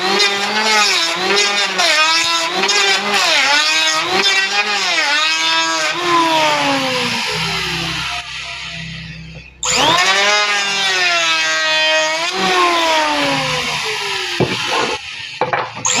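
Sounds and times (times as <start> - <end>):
electric planer motor whining: 0.0 - 16.0.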